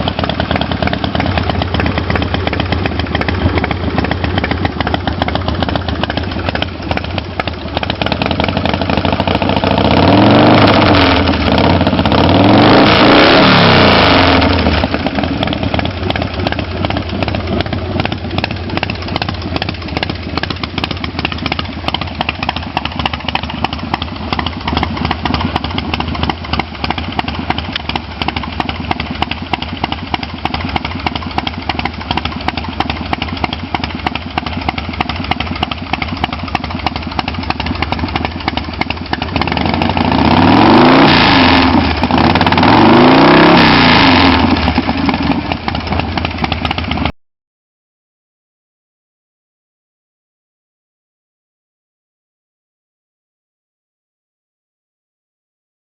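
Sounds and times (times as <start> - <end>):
motorcycle engine idling and revving: 0.0 - 47.2.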